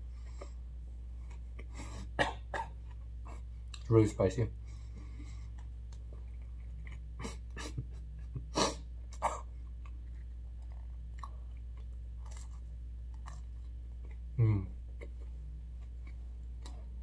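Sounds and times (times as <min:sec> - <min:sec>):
steady low hum: 0:00.0 - 0:17.0
chewing with mouth clicks and crunches: 0:05.0 - 0:07.5, 0:09.1 - 0:14.3, 0:15.0 - 0:17.0.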